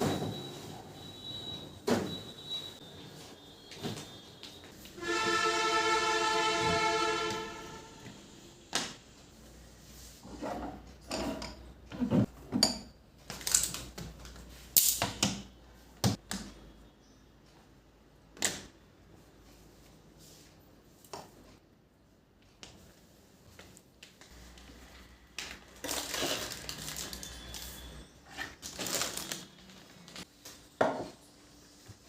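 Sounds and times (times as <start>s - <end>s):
loud whistle-like tone: 1.0s - 8.4s.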